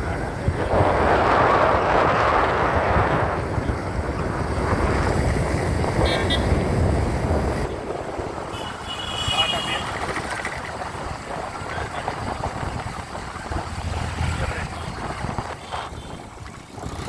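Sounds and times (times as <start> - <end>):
motorbike rumble: 0.0 - 17.0
wind rushing over microphone: 0.0 - 17.0
vehicle horn toot: 6.0 - 6.6, 8.5 - 10.1, 15.6 - 16.3.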